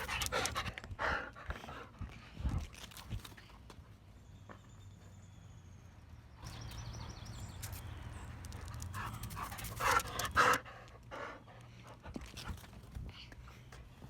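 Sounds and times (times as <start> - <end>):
dog panting: 0.0 - 2.6, 8.6 - 12.8.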